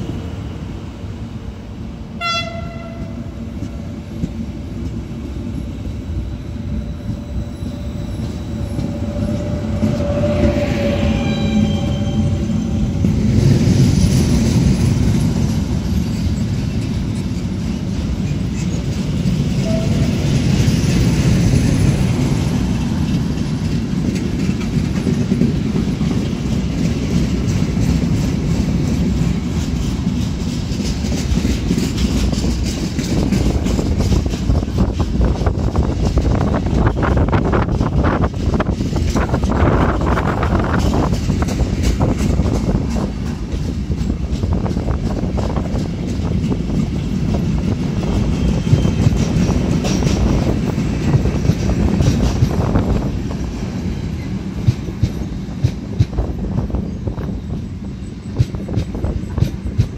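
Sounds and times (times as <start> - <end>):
freight train wheels rumbling: 0.0 - 59.9
train horn: 2.2 - 3.4, 8.6 - 12.9, 19.6 - 20.4.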